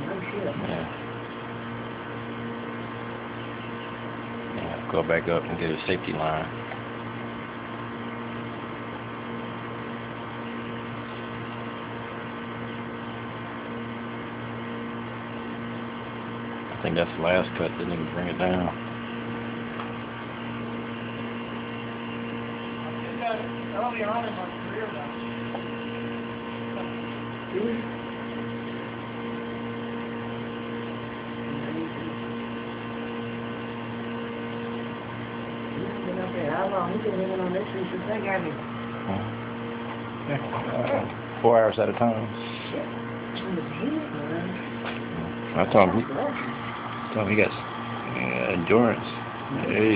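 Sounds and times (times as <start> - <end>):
low mechanical hum: 0.0 - 49.9
faint voice: 39.1 - 39.4.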